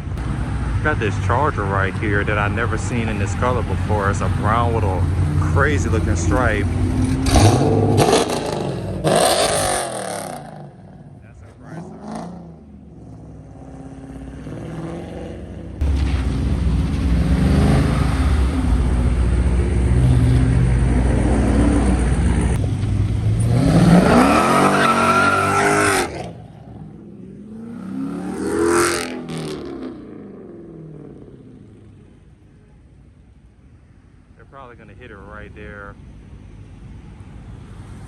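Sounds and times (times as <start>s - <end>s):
car engine revving: 0.0s - 32.7s
tyres squealing: 24.1s - 26.2s.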